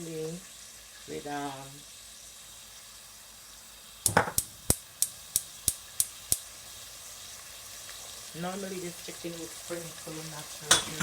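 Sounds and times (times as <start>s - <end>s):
chicken frying in oil: 0.0s - 11.0s
utensil knocking against pot: 4.1s - 4.5s.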